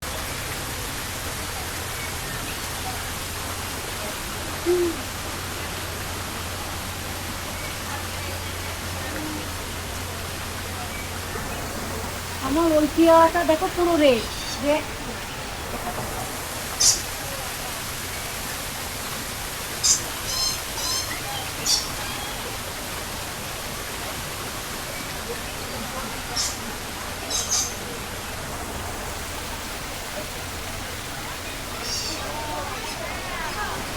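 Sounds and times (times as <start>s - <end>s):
fountain water splashing into pond: 0.0s - 33.9s
squeaky high call: 20.3s - 22.4s.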